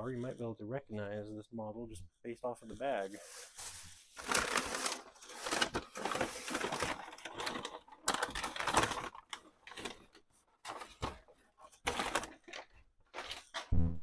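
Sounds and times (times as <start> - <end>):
packing material rustling: 3.0 - 11.2.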